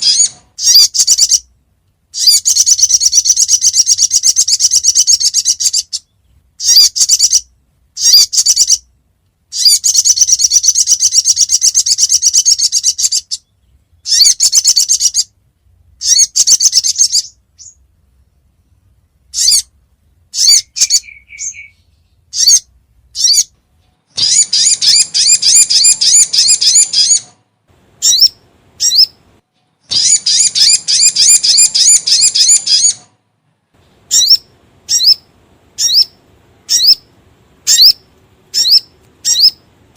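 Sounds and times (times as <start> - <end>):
bird trilled chirps: 0.0 - 1.5, 2.2 - 8.9, 9.5 - 15.3, 16.0 - 17.8, 19.3 - 19.7, 20.3 - 27.4, 28.0 - 29.2, 29.8 - 33.1, 34.1 - 39.7.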